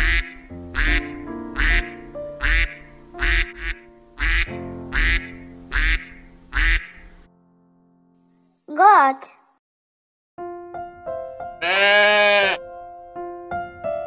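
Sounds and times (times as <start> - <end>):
duck quacking: 0.0 - 7.2, 11.6 - 12.6
background music: 0.0 - 8.6.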